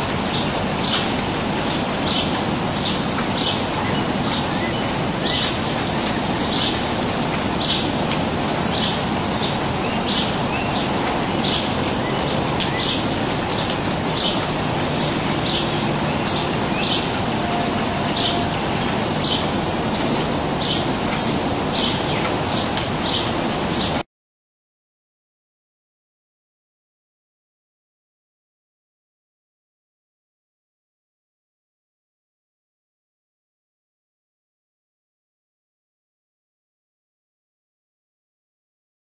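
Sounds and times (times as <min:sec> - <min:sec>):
bird chirping: 0:08.7 - 0:20.9.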